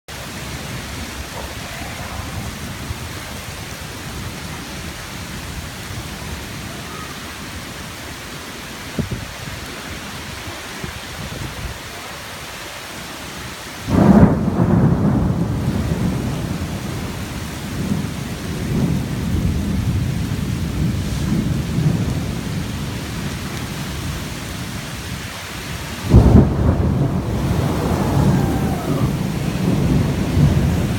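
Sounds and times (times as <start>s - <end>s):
steady rain falling: 0.1s - 30.9s
thunder clap and rumbles: 13.9s - 30.9s.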